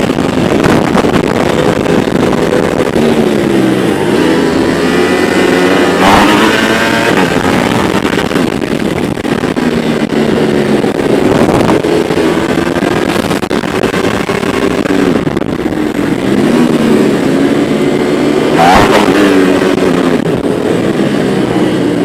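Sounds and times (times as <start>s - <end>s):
motorcycle engines running: 0.0s - 22.0s.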